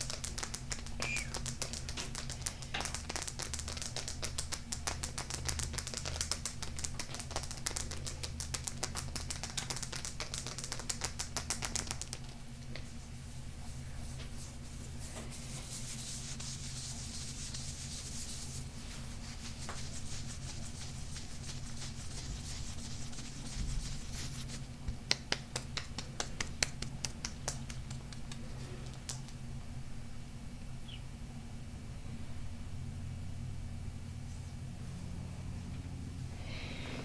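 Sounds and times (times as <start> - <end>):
hands rubbing stone: 14.3 - 29.2.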